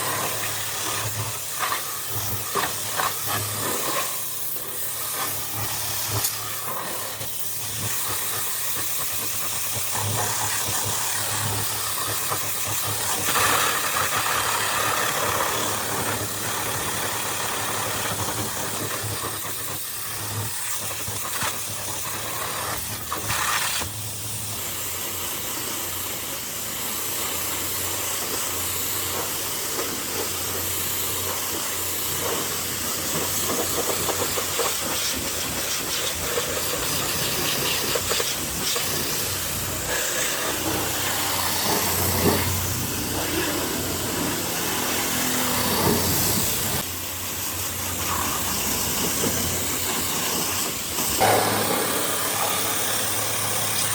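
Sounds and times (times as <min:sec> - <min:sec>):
pressure washer spraying water: 0:00.0 - 0:53.9
pump motor humming: 0:21.6 - 0:53.9.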